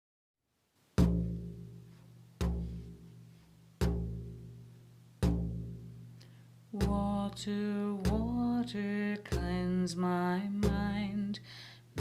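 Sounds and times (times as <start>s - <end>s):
drum strikes with deep ringing: 1.0s - 6.1s, 6.8s - 9.9s.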